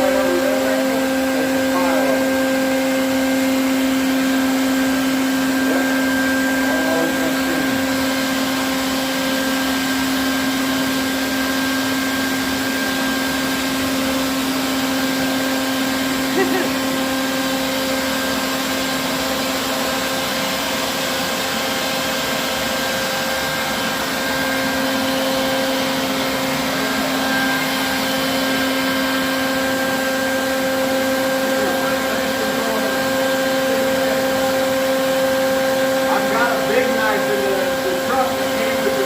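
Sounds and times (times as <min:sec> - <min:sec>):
vacuum motor humming: 0:00.0 - 0:39.0.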